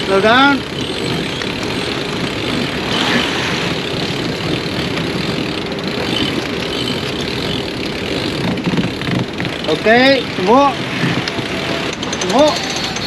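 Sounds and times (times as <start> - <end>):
wind and sea rushing: 0.0 - 13.0.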